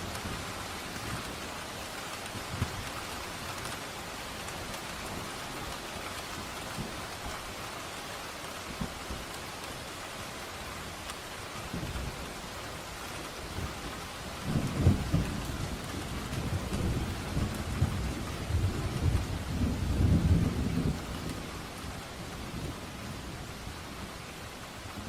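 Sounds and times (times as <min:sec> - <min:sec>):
steady rain: 0:00.0 - 0:25.0
low rumble of thunder: 0:13.5 - 0:25.0.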